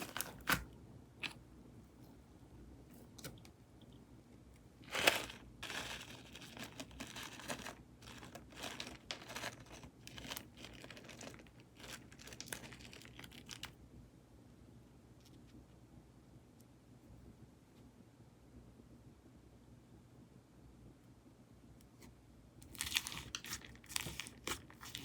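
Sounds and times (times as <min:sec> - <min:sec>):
slime packaging crinkling: 0:00.0 - 0:01.4, 0:04.8 - 0:13.8, 0:22.6 - 0:25.0.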